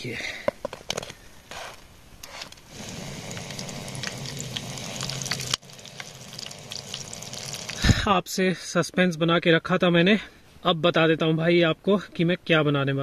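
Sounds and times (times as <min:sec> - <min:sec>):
chillies sizzling in hot oil: 0:02.7 - 0:08.0.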